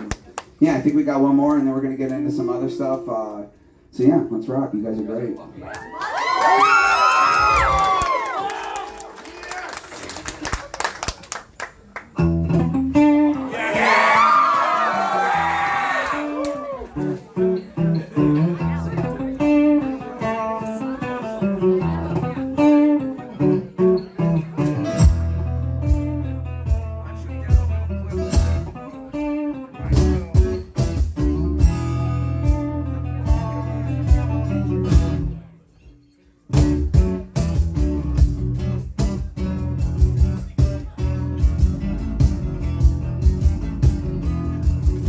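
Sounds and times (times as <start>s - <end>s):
band playing acoustic guitar: 0.0s - 5.6s, 10.2s - 45.0s.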